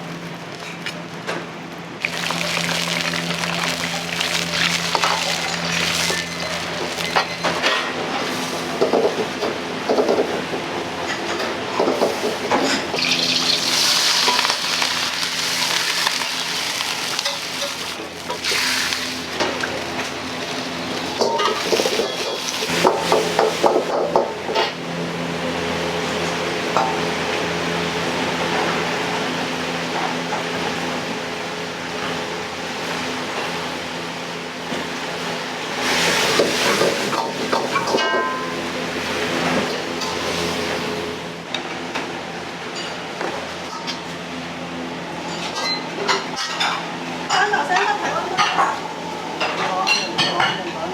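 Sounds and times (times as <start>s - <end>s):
ventilation and burners hissing: 0.0s - 50.9s
food frying in hot oil: 2.0s - 10.0s, 12.0s - 24.2s, 34.6s - 38.0s
kitchen clatter: 2.0s - 10.4s, 11.0s - 24.8s, 35.8s - 38.6s.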